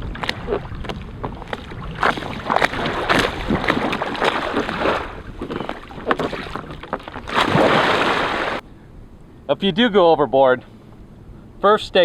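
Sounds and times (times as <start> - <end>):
water splashing around kayak: 0.0 - 8.6
wind rumbling on microphone: 0.0 - 9.5.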